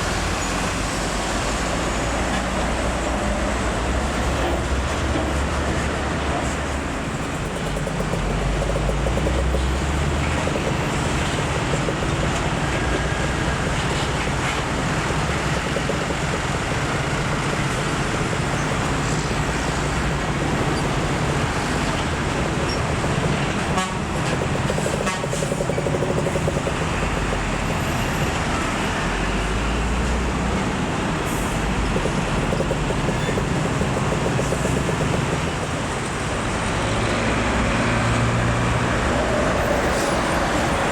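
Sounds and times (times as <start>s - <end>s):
road noise: 0.0s - 40.9s
truck engine drone: 5.7s - 37.0s.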